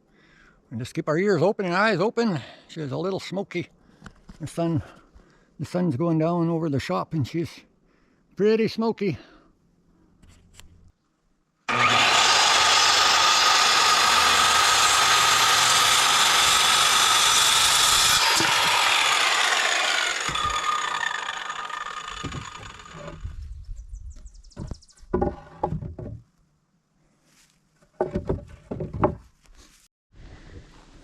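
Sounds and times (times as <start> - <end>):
power saw cutting wood: 11.7 - 23.3.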